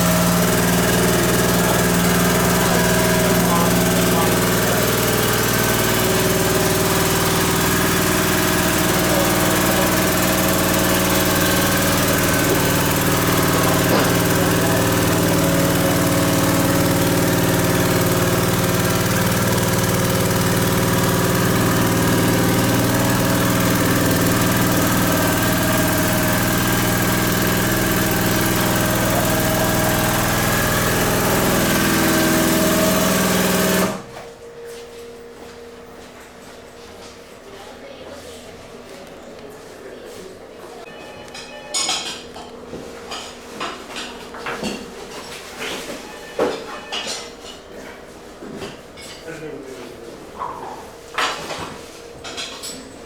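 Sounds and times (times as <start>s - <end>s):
scooter engine idling: 0.0s - 34.2s.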